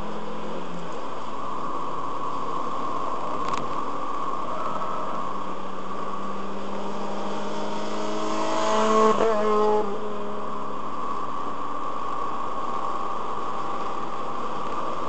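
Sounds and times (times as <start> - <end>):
car cabin drone: 0.0 - 15.0
engine note rising in pitch: 6.1 - 10.8.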